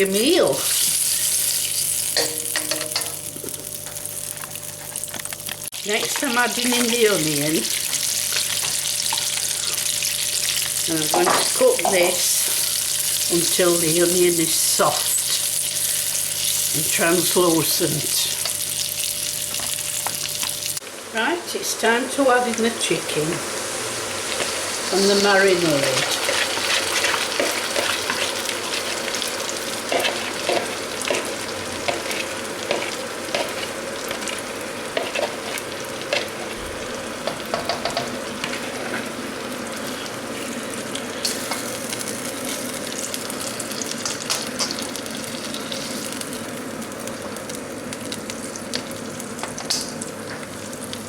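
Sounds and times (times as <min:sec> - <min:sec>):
chicken sizzling in a wok: 0:00.0 - 0:51.0.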